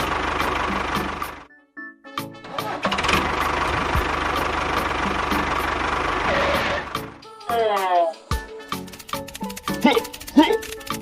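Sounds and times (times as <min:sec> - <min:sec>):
small engine running: 0:00.0 - 0:01.5, 0:02.8 - 0:07.2, 0:08.8 - 0:11.0
background music: 0:00.0 - 0:11.0.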